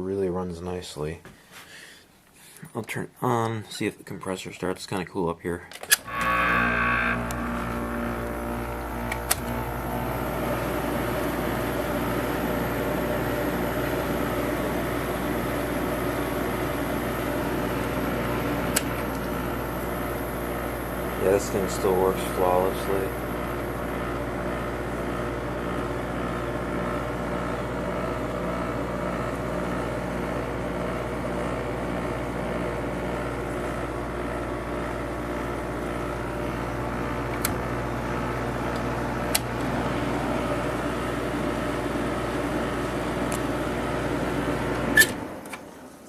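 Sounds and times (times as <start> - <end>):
window air conditioner humming: 6.0 - 46.0
switch click: 9.0 - 9.6.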